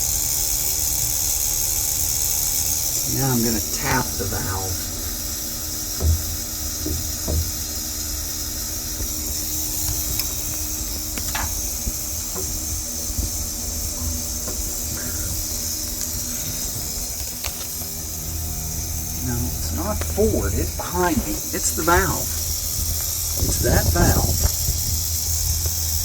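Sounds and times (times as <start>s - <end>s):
valve rumble and hum: 0.0s - 26.0s
rushing air hiss: 1.8s - 26.0s
sharp taps on valve: 5.9s - 7.6s.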